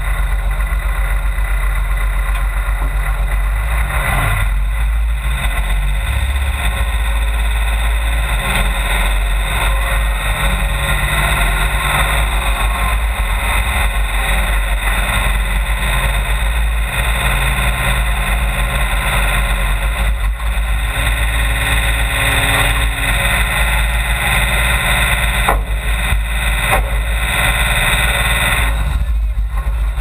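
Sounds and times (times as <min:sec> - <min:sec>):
dense rumbling noise: 0:00.0 - 0:30.0
truck engine running: 0:00.0 - 0:30.0.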